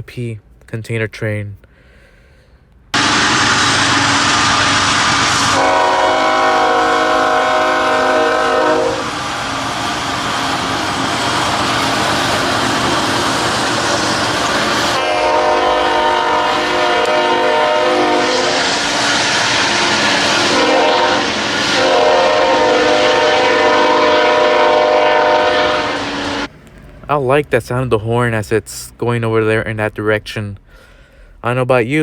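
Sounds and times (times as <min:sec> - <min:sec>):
locomotive air horn: 0:03.0 - 0:09.7, 0:14.0 - 0:26.5
passing train rumble: 0:03.0 - 0:30.2.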